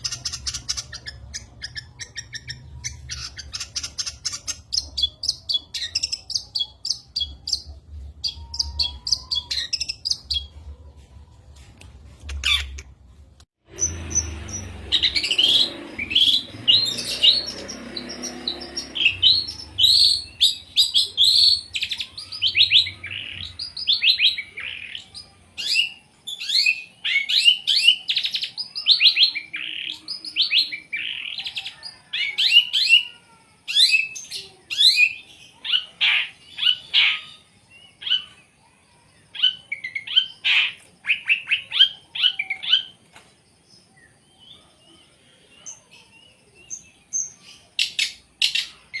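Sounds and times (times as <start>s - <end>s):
bird singing chattering notes: 0.0s - 10.6s, 13.6s - 31.7s.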